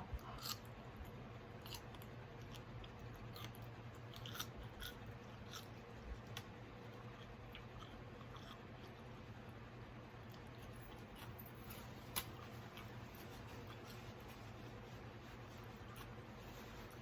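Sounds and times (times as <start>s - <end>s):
person chewing food: 0.0s - 9.4s, 10.2s - 17.0s
mouth clicks and crunches: 0.1s - 9.2s.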